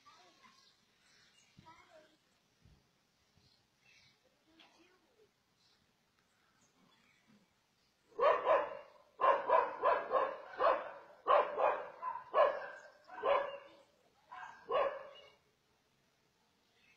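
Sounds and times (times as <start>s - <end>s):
dog barking: 8.2s - 15.4s.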